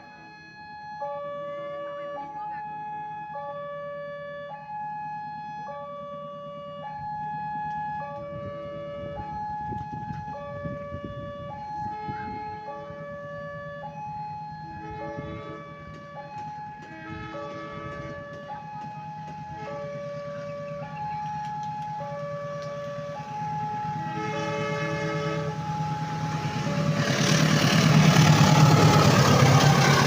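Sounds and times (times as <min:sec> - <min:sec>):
two-tone level crossing alarm: 0:00.0 - 0:30.0
rough rumble: 0:22.4 - 0:30.0.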